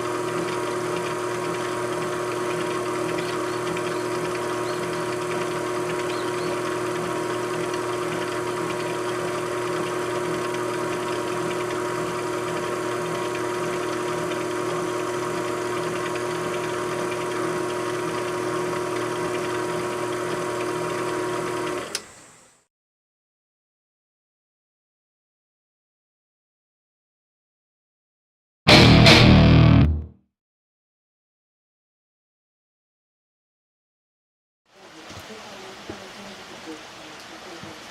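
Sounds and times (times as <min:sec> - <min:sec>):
machine tool motor humming: 0:00.0 - 0:22.6.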